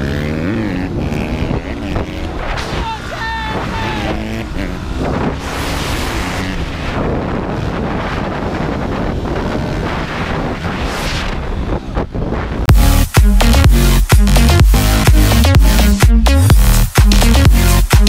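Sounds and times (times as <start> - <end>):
dirt bike engine running: 0.0 - 10.8, 11.4 - 18.0
wind rushing over microphone: 0.0 - 12.7.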